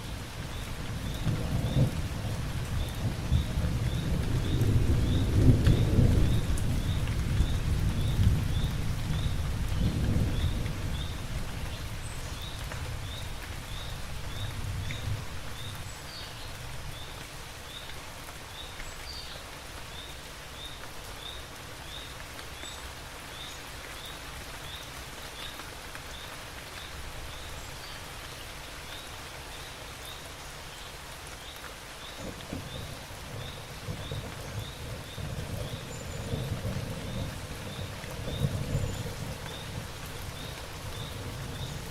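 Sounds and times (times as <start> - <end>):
steady rain: 0.0 - 41.9
thunder rumbling: 1.0 - 11.1, 32.2 - 41.9.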